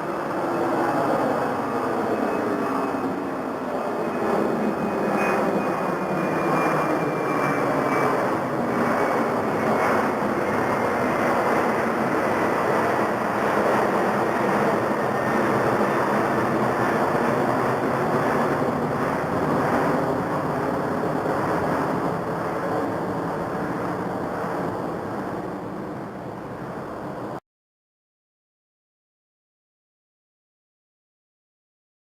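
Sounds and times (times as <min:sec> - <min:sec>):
jet engines roaring: 0:00.0 - 0:27.4.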